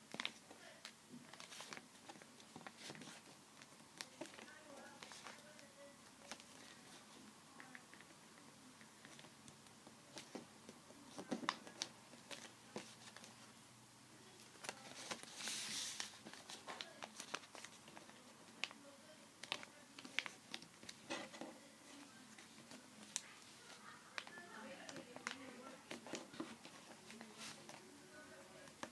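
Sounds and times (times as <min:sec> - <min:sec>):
paper folding and crinkling: 0:00.0 - 0:08.1, 0:10.0 - 0:13.5, 0:14.3 - 0:28.9
paper sheet rustling: 0:14.6 - 0:18.8, 0:19.4 - 0:28.9.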